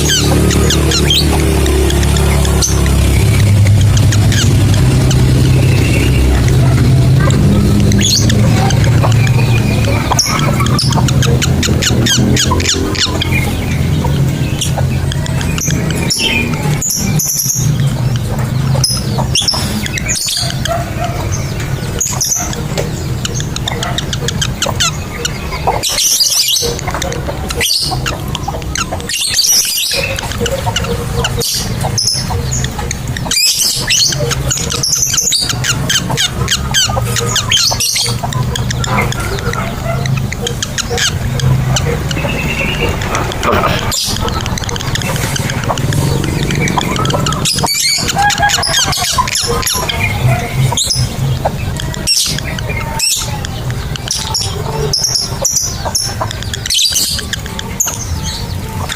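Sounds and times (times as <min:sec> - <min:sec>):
lovebirds chirping and screeching: 0:00.0 - 0:58.9.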